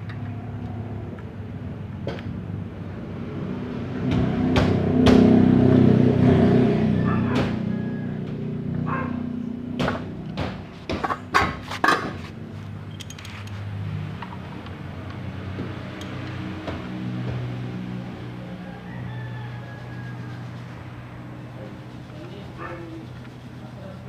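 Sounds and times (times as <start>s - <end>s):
sharp metallic clicks and knocks: 9.8s - 17.5s.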